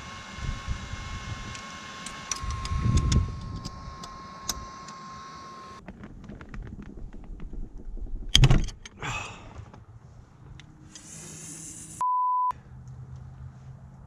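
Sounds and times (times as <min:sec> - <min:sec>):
censor bleep: 0:12.0 - 0:12.5.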